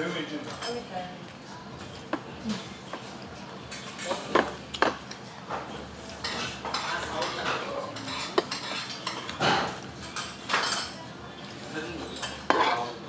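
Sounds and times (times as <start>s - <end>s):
cutlery clinking and scraping dishes: 2.9s - 13.0s.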